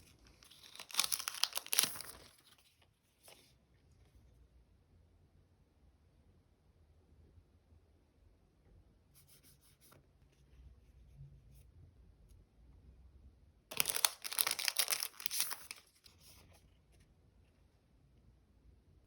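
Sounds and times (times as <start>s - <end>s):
paper sheet crinkling: 0.0s - 3.5s, 13.7s - 16.7s.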